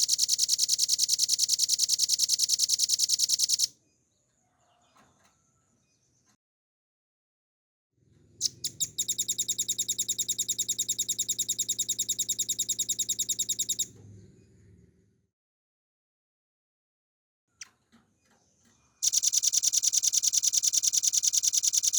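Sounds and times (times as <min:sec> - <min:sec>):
bird singing a fast trill: 0:00.0 - 0:03.7, 0:08.4 - 0:13.9, 0:19.0 - 0:21.9.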